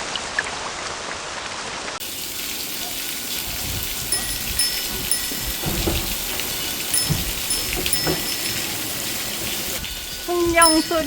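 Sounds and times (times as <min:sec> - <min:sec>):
rain falling: 0:00.0 - 0:11.0
low rumbles: 0:03.4 - 0:11.0.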